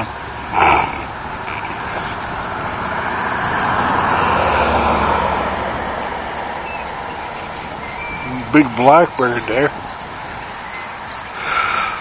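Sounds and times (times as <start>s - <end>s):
vehicle driving past: 0.0s - 9.1s.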